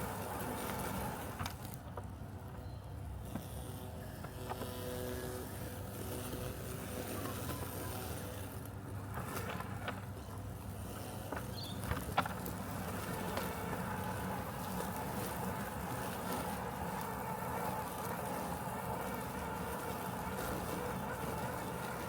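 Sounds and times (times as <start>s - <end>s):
robotic lawn mower humming: 0.0s - 1.8s, 3.2s - 22.0s.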